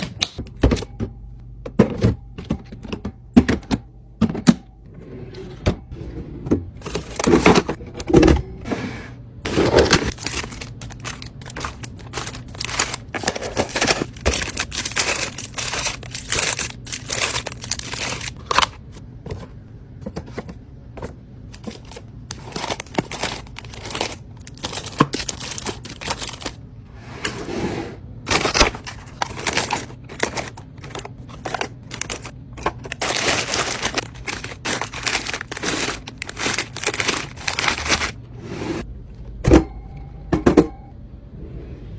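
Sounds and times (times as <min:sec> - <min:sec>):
plastic wrapping crinkling: 0:09.8 - 0:18.7, 0:21.6 - 0:26.6, 0:28.3 - 0:38.2.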